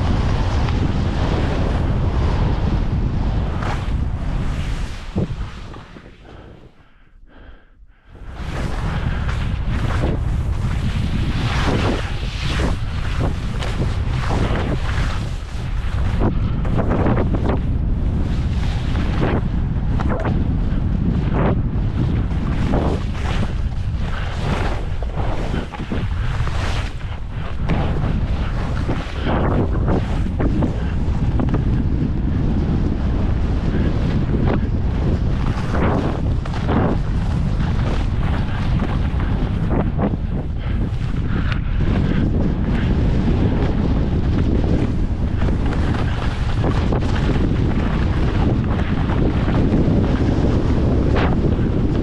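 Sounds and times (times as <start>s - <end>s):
skis scraping over snow: 0.0s - 6.8s, 8.2s - 52.0s
wind buffeting microphone: 0.0s - 52.0s
skis hissing over snow: 22.5s - 31.2s.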